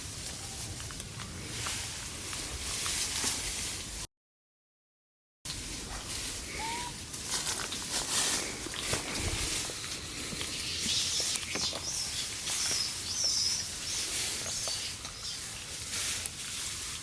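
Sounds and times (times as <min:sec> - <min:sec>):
birds chirping: 0:08.4 - 0:15.7.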